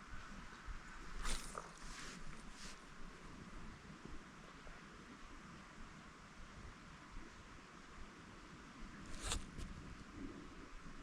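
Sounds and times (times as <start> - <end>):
light low rustling: 0.8 - 3.2.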